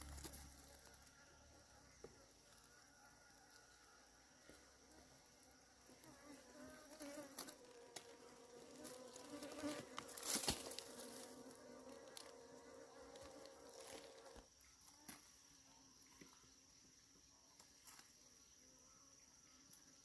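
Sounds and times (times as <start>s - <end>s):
sharp crackle: 0.0s - 1.2s, 8.8s - 11.3s
bees buzzing: 5.8s - 14.4s.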